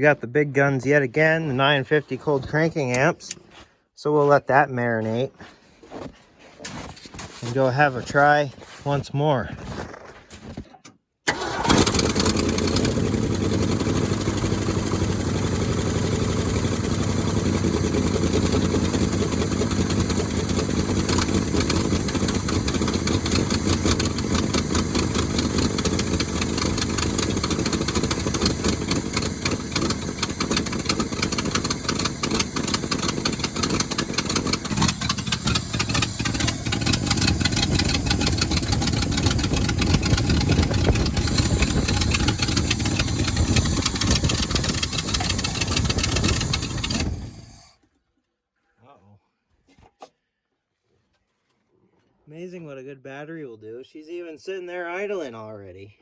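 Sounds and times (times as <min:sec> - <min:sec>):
truck engine starting and running: 0:00.0 - 0:03.6, 0:11.2 - 0:47.9.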